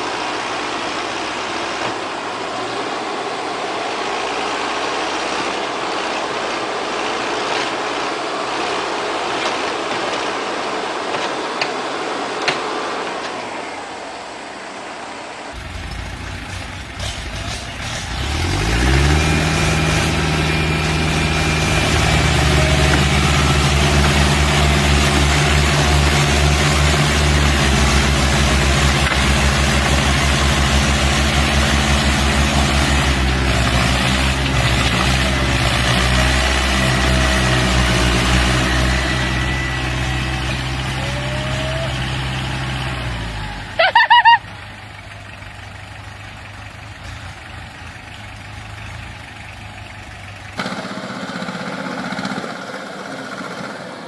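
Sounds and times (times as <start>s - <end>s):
loud high-pitched squeal: 15.6s - 42.7s
large diesel engine revving: 15.6s - 54.0s.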